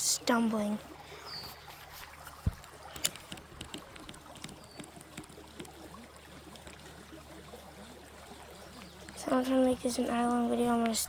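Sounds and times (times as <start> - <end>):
creek water running: 0.0 - 11.0
dull thump: 2.3 - 2.6
small clicks and knocks: 2.4 - 5.8.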